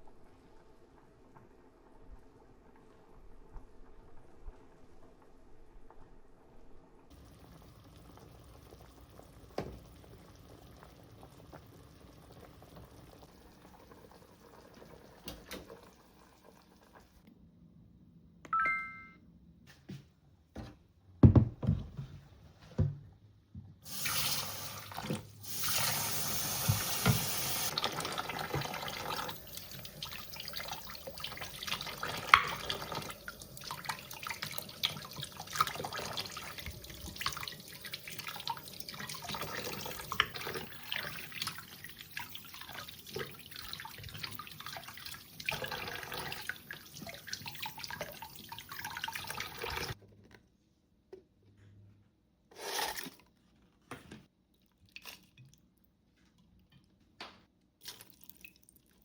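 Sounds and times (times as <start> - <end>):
tap water running into sink: 23.9 - 50.0.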